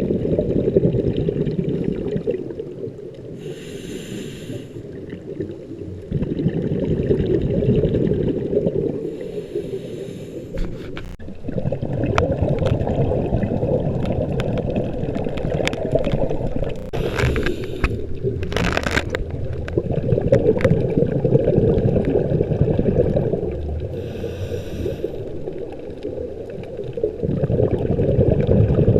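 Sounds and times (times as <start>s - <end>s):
bubbling exhaled air underwater: 0.0s - 28.9s
hissing regulator inhalations: 3.4s - 4.8s, 9.1s - 11.2s, 16.8s - 18.1s, 24.0s - 25.3s.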